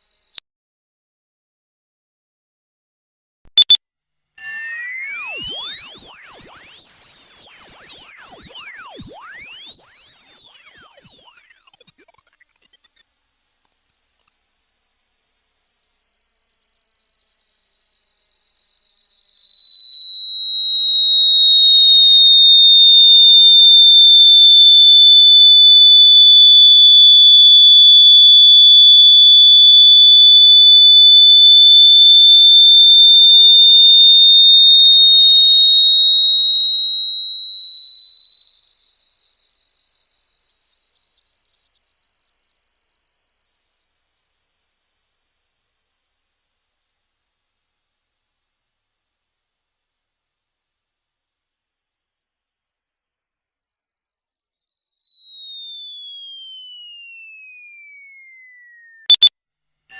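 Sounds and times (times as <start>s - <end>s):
high-pitched electronic tone: 0.0s - 0.4s, 3.6s - 21.6s, 36.9s - 44.0s, 59.1s - 59.9s.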